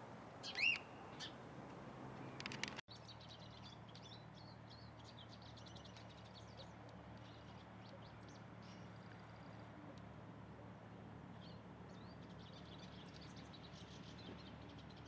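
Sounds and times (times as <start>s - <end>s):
sharp clicks: 2.4s - 2.8s.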